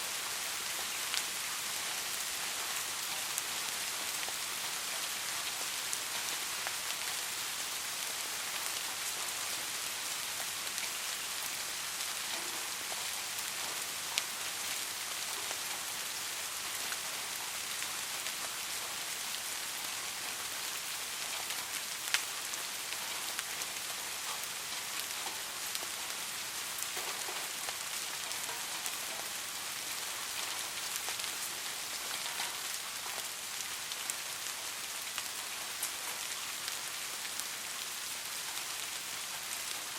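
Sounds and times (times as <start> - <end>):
steady rain hiss: 0.0 - 39.9
single raindrops ticking: 32.2 - 33.2.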